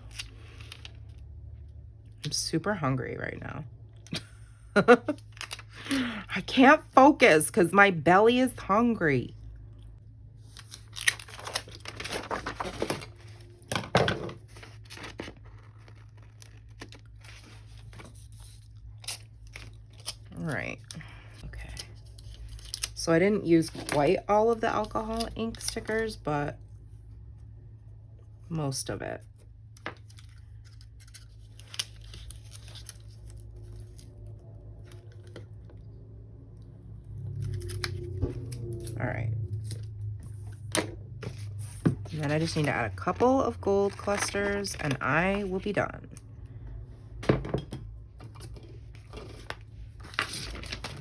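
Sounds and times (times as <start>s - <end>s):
paper stickers rustling: 10.4s - 13.5s, 14.4s - 21.0s, 29.9s - 35.6s, 39.6s - 45.8s.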